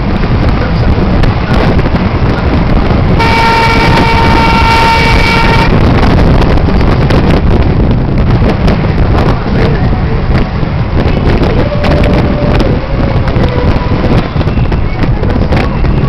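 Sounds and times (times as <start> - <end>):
loud low rumble: 0.0 - 16.0
vehicle horn: 3.2 - 6.0.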